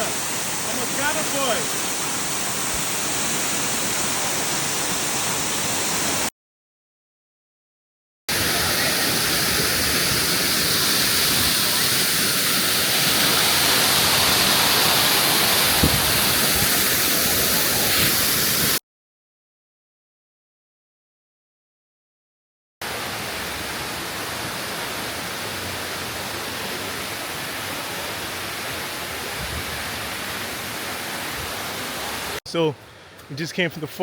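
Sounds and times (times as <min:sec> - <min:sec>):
waterfall rushing: 0:00.0 - 0:06.3, 0:08.3 - 0:18.8, 0:22.8 - 0:32.4.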